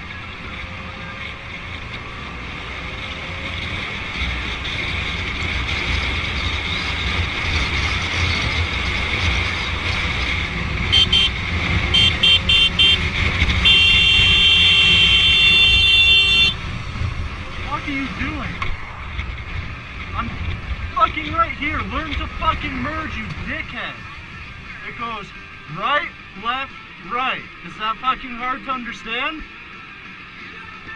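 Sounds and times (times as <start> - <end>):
motorcycle engine: 0.0 - 26.5
wind: 0.0 - 30.9
horn beeping: 10.9 - 16.6.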